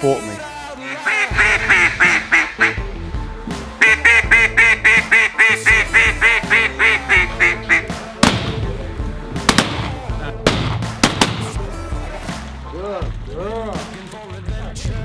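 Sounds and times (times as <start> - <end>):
background music: 0.0 - 15.0
rapid duck quacks: 0.9 - 2.9, 3.8 - 8.6
sharp crack: 4.8 - 12.6.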